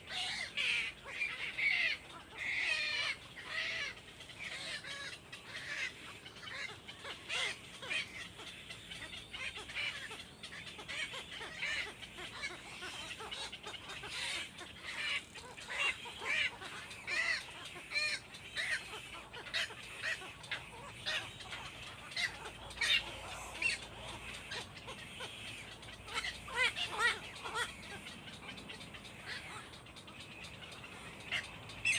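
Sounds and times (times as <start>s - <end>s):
young birds chirping: 0.0s - 31.9s.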